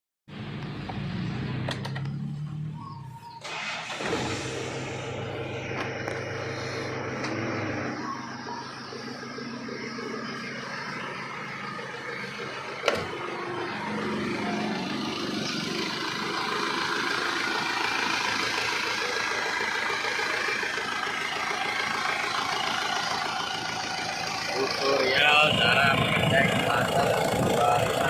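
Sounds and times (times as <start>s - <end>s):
diesel engine idling: 0.3s - 28.0s.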